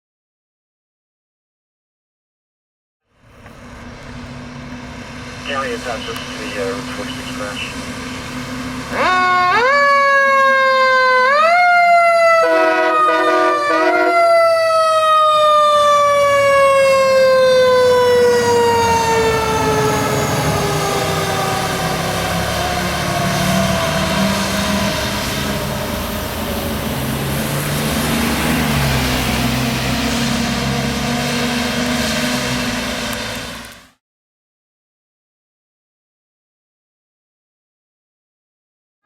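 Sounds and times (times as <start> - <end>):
truck engine and road noise: 3.1 - 34.0
fire engine siren: 3.2 - 34.0
air horn blasts: 12.3 - 14.4.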